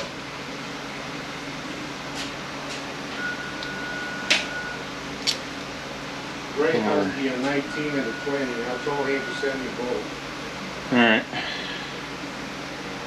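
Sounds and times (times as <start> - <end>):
steady background hum: 0.0 - 13.0
thin steady tone: 6.6 - 10.1.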